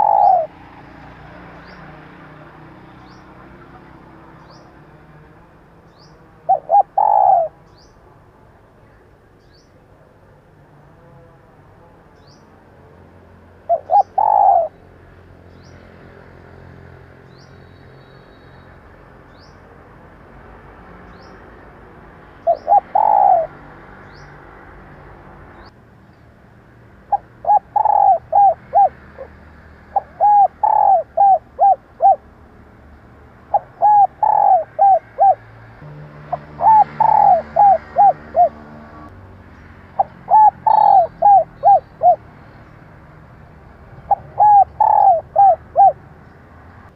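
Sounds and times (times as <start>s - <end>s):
dove cooing: 0.0s - 2.0s, 6.0s - 7.7s, 13.6s - 14.8s, 22.4s - 23.6s, 27.1s - 32.2s, 33.4s - 35.5s, 36.2s - 38.9s, 40.0s - 42.3s, 44.0s - 46.0s
small bird chirping: 39.5s - 42.8s.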